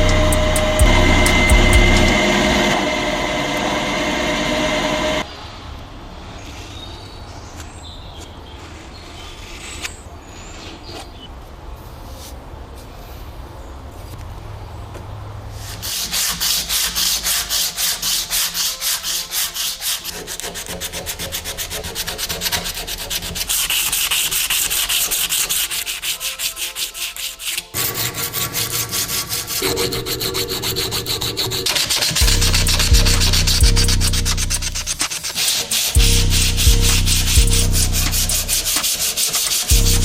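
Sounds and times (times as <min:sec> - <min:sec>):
hand sanding strokes: 0:00.0 - 0:05.3, 0:15.5 - 0:40.0
low hum: 0:00.0 - 0:05.3, 0:29.6 - 0:35.1, 0:36.0 - 0:38.8, 0:39.7 - 0:40.0.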